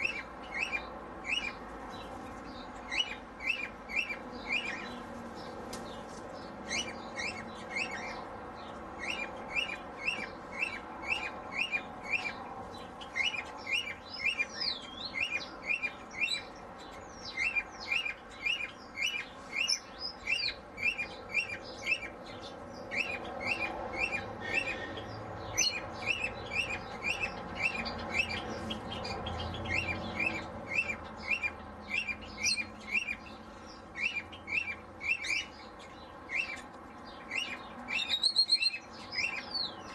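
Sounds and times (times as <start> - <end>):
higher bird calls: 13.0 - 39.9
short repeated bird chirps: 37.3 - 39.9.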